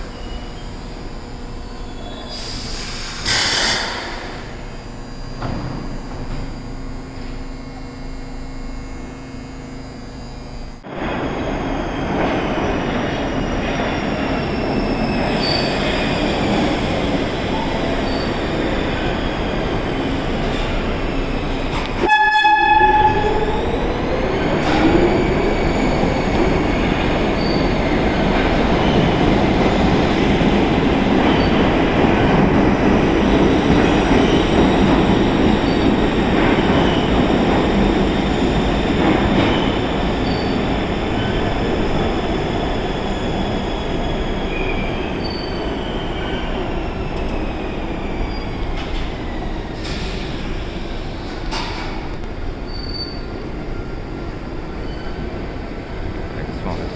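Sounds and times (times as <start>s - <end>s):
subway train wheel and motor noise: 0.0s - 56.9s
train horn: 22.0s - 23.6s.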